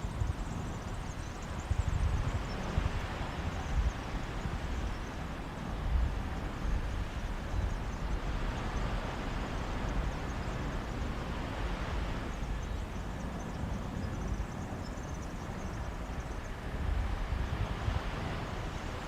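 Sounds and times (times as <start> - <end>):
sea breeze: 0.0 - 19.0
sea waves washing onto beach: 15.4 - 19.0.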